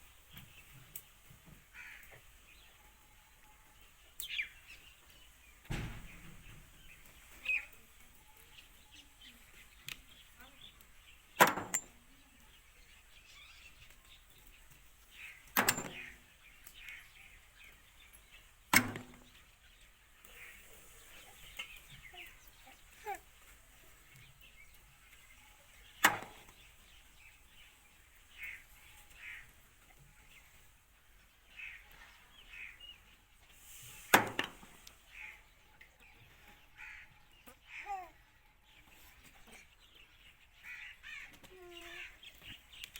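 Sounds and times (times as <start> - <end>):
sharp loud click: 18.7 - 19.2.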